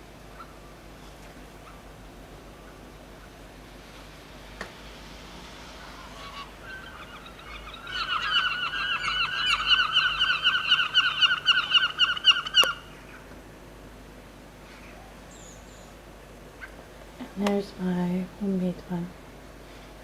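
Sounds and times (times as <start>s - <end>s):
blackbird alarm chatter: 6.0s - 13.3s.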